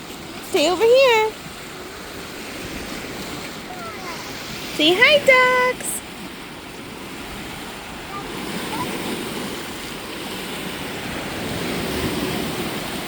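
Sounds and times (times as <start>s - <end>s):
small waves washing onto shore: 0.0s - 13.0s.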